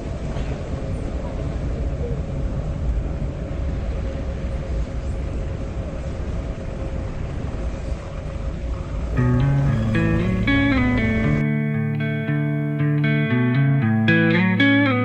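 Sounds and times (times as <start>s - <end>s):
vehicle running with low rumble: 9.1s - 11.4s.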